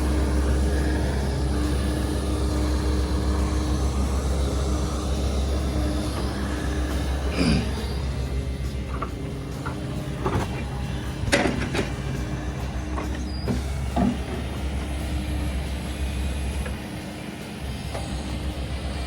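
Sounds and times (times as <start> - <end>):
heavy diesel machine running: 0.0 - 19.0
metal clanks and knocks: 8.2 - 15.2.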